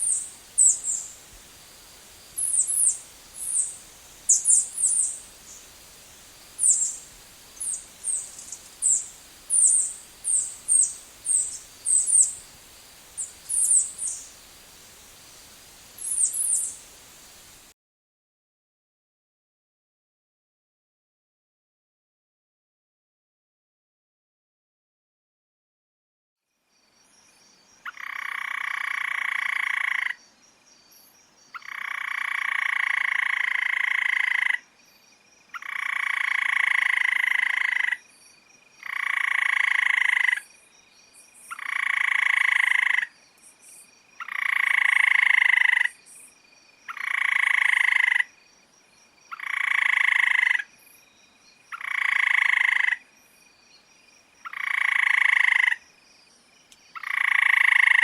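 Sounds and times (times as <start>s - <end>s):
animal buzzy croaking calls: 38.8s - 40.4s, 41.5s - 43.1s, 44.2s - 45.9s, 46.9s - 48.3s, 49.3s - 50.7s, 51.7s - 53.0s, 54.5s - 55.8s, 57.0s - 58.0s.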